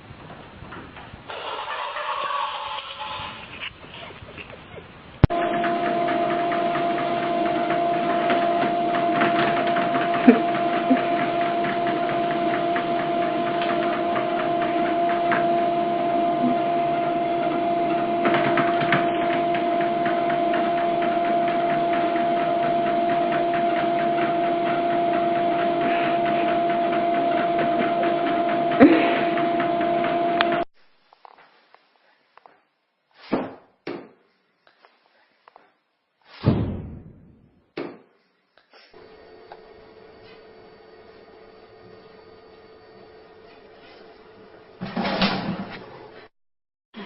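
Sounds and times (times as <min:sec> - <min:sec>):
machine hum over whir: 0:05.2 - 0:30.7, 0:39.0 - 0:46.3.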